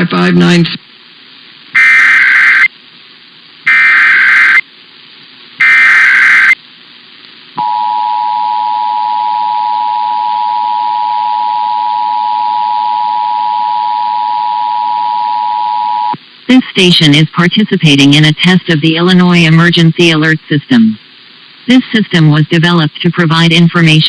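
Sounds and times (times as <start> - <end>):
digital data bursts: 1.8 - 2.7, 3.6 - 4.6, 5.6 - 6.6.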